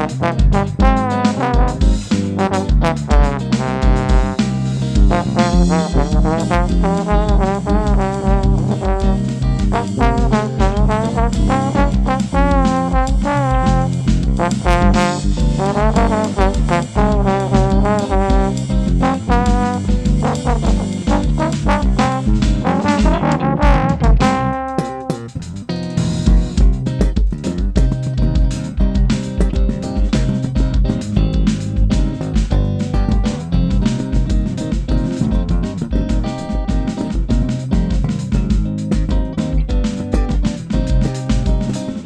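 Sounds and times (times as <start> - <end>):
trombone melody with vibrato: 0.0 - 4.4, 5.1 - 25.3
kick drum beat: 0.0 - 25.3, 26.0 - 42.0
bass notes: 0.0 - 42.0.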